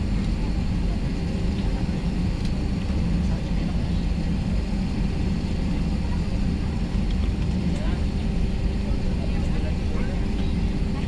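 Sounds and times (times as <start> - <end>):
jet engine rumble in cabin: 0.0 - 11.0.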